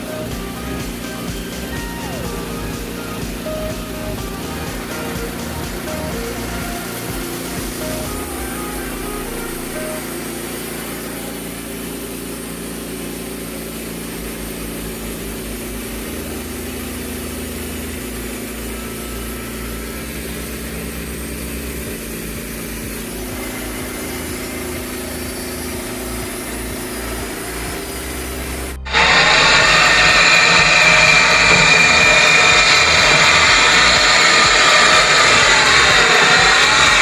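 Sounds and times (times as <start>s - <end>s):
bandsaw mill sawing log: 0.0s - 37.0s.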